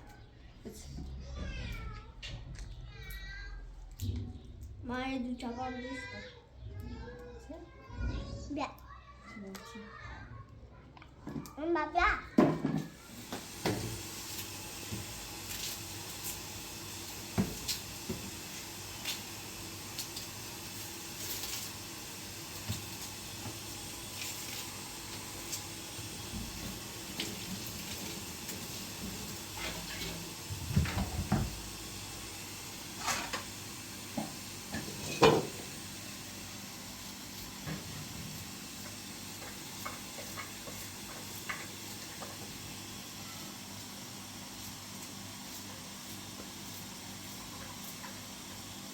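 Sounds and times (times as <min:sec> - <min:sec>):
objects knocking and clattering: 0:12.3 - 0:13.9, 0:34.2 - 0:35.6.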